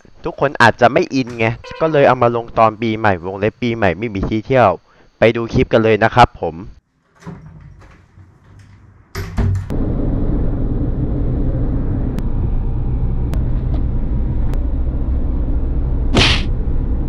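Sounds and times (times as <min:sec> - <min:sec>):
car engine and tyre rumble: 0:09.7 - 0:17.0.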